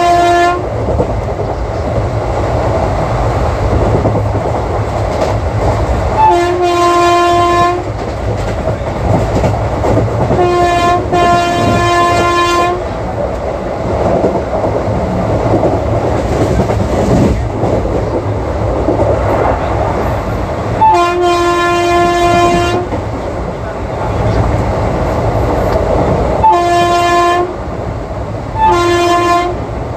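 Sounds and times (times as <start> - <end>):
locomotive horn blasts: 0.0 - 0.7, 6.2 - 7.9, 10.3 - 13.0, 20.8 - 23.0, 26.4 - 27.6, 28.6 - 29.7
train wheels rumbling on track: 0.0 - 29.9.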